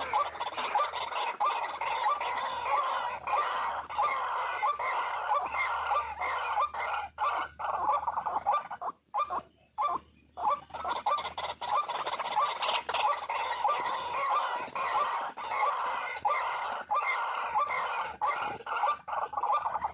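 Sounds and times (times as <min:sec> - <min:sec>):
waterhens clucking calls: 0:00.0 - 0:19.9.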